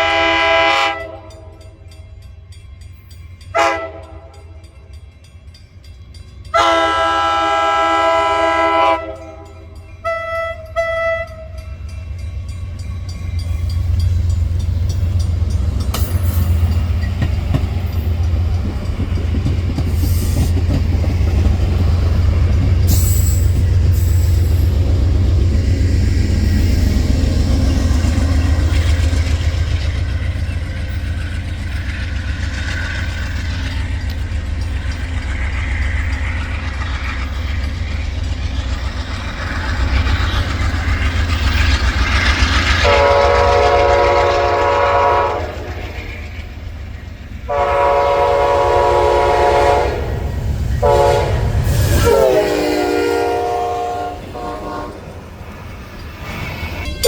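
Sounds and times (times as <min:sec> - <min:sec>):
multi-tone train horn: 0:00.0 - 0:01.9, 0:03.5 - 0:04.8, 0:06.5 - 0:11.8, 0:42.8 - 0:46.4, 0:47.5 - 0:55.3
diesel train rumble: 0:00.0 - 0:57.0.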